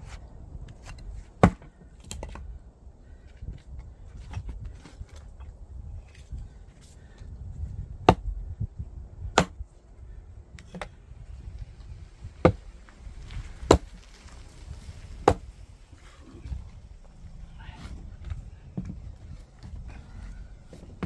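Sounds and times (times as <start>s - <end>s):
axe splitting firewood log: 0.0s - 2.5s, 7.8s - 8.5s, 9.3s - 9.6s, 12.4s - 12.7s, 13.5s - 14.0s, 15.2s - 15.5s.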